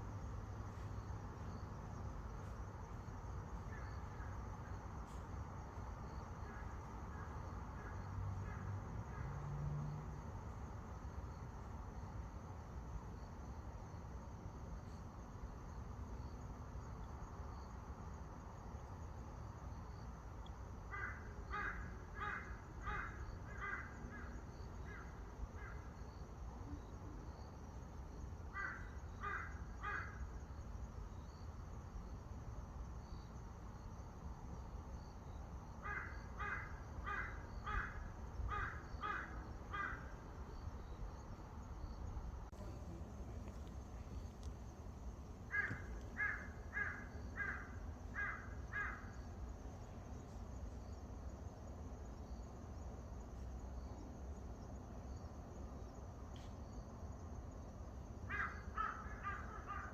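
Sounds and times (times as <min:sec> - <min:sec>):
low outdoor rumble: 0:39.5 - 0:48.2.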